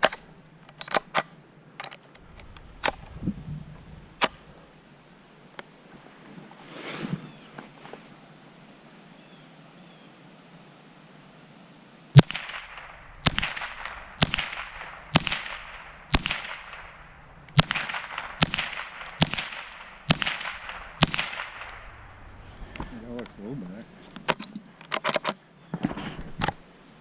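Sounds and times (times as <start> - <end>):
rifle shots echoing: 12.2 - 22.2.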